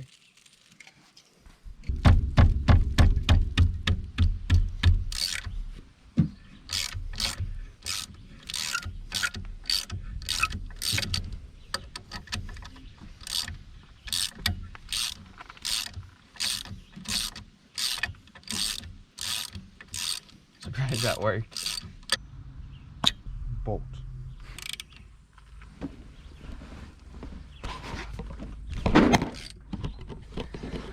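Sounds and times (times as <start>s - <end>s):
ratchet wrench clicking: 5.1s - 5.6s, 6.7s - 22.2s, 24.5s - 25.0s.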